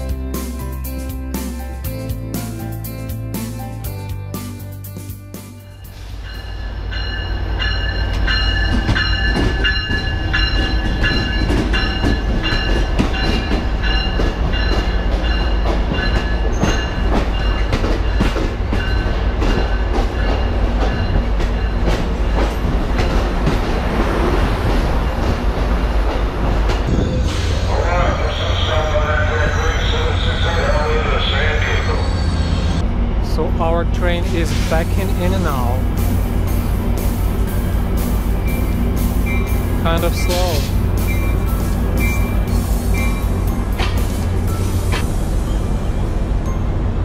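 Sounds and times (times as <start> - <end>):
train rumbling: 0.0 - 47.0.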